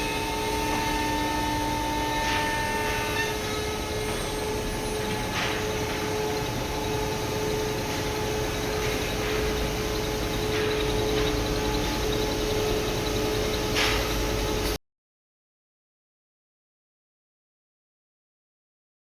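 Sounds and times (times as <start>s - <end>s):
machine noise: 0.0s - 14.8s
router spindle whining: 0.0s - 14.8s.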